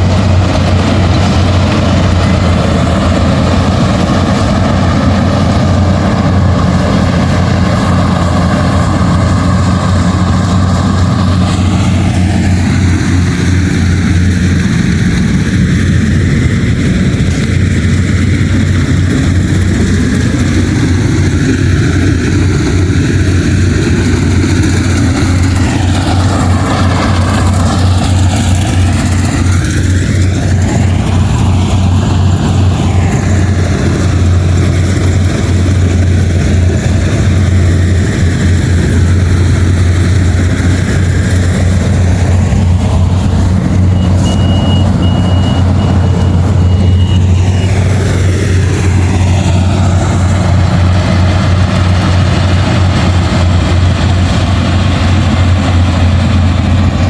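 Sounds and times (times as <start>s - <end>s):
combine harvester engine droning: 0.0s - 57.0s
short high beeping: 43.8s - 47.8s.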